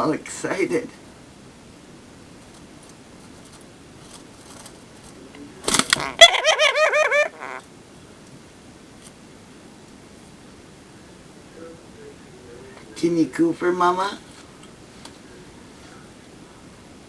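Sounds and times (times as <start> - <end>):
lovebird squawk: 6.0 - 7.6.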